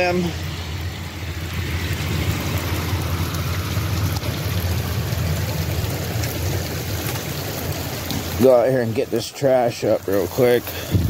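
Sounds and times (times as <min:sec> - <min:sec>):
steady rain hissing: 0:00.0 - 0:11.0
low rumble: 0:00.4 - 0:08.4.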